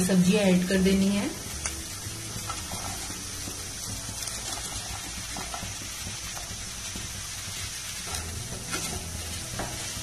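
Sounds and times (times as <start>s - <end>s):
vegetables sizzling in a pan: 0.0s - 10.0s
spatula stirring: 1.6s - 10.0s
vegetable pieces knocking: 2.4s - 10.0s.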